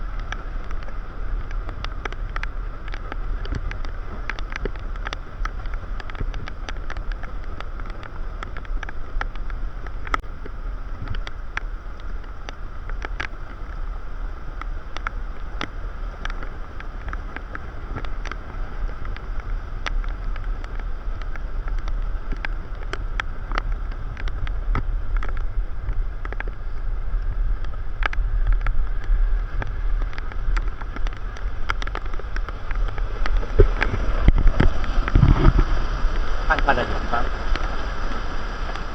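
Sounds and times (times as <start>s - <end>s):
mid-pitched hum: 0.0s - 38.9s
wind buffeting microphone: 0.0s - 38.9s
low rumble: 20.2s - 38.9s.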